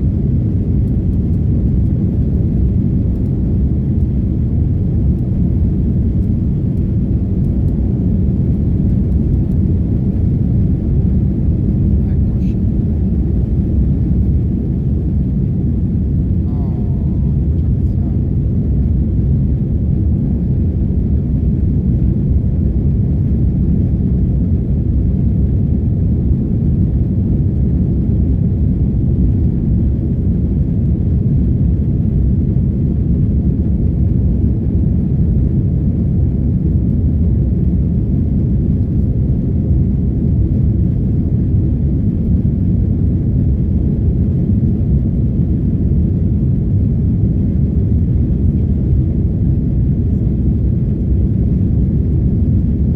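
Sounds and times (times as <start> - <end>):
jet engines and airflow in cabin: 0.0 - 52.9.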